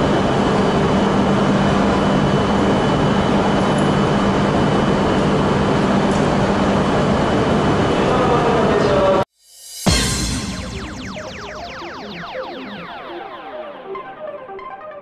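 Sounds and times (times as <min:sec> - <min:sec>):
standing train hum and rushing: 0:00.0 - 0:09.2.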